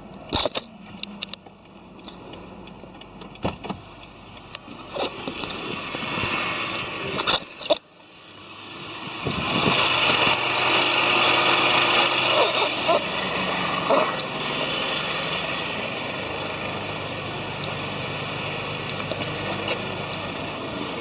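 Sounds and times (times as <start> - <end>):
car engine starting and idling: 0.0 - 21.0
sharp clicks: 0.1 - 5.8.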